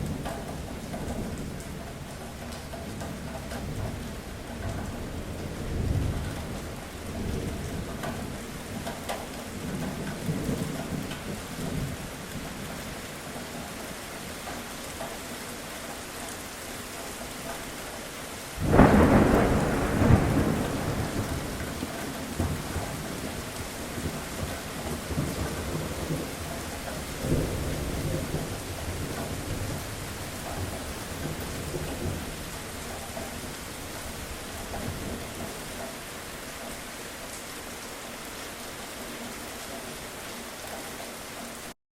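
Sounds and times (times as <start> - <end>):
heavy rain: 0.0 - 41.8
loud thunderclap: 18.6 - 23.4
thunder rumbling: 18.6 - 35.4.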